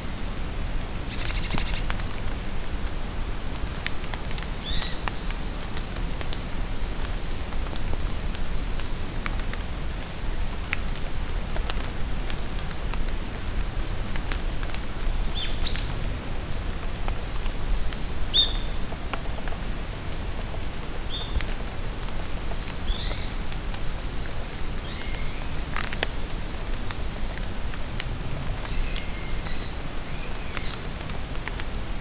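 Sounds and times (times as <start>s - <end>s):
rain pattering in forest: 0.0s - 32.0s
songbirds chirping: 28.6s - 30.9s.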